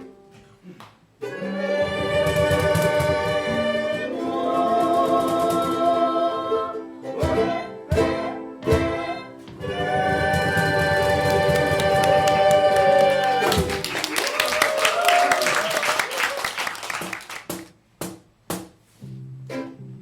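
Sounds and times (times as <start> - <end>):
ukulele ensemble music: 0.0 - 20.0
person singing long notes: 1.2 - 13.8.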